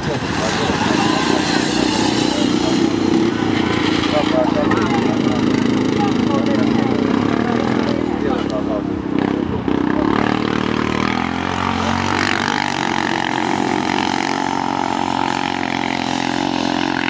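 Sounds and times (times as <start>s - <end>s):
steady high whine: 0.0s - 8.3s
atv engines revving: 0.0s - 17.0s.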